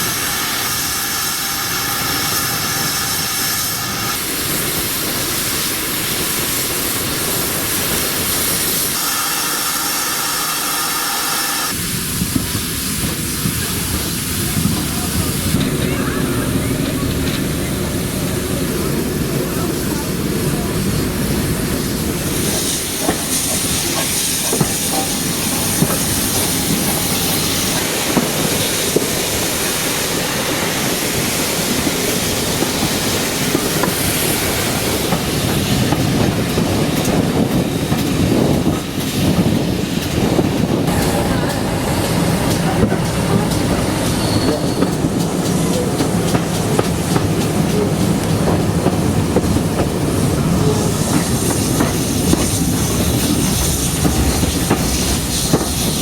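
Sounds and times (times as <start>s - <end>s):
train rumbling on rails: 0.0s - 56.0s
wheels clicking over rail joints: 31.6s - 56.0s
wheel squeal: 43.2s - 45.1s.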